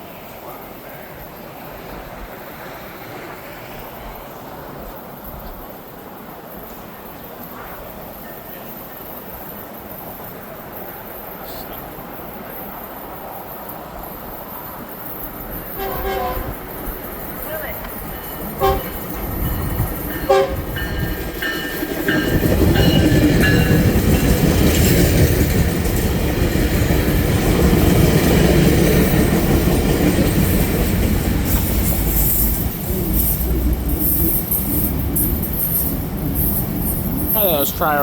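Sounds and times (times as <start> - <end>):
train rumbling past: 0.0 - 38.0
wheel clatter over rail joints: 12.2 - 38.0
train horn blasts: 15.7 - 16.7, 18.6 - 19.1, 20.2 - 21.1.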